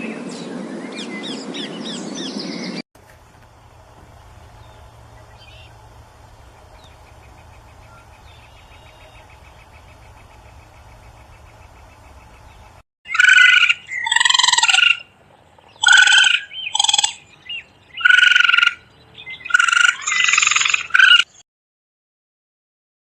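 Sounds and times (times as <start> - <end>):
harsh animal calls: 4.1 - 15.2, 15.8 - 17.3, 18.0 - 21.4.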